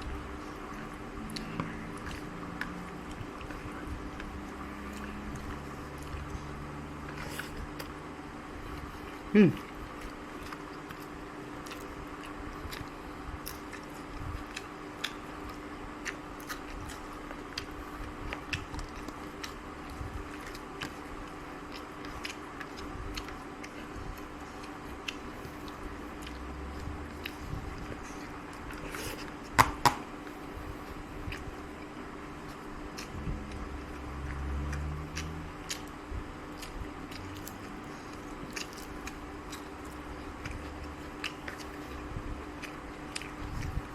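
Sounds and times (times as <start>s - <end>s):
person chewing and crunching: 0.0s - 43.9s
steady low hum: 0.0s - 43.9s.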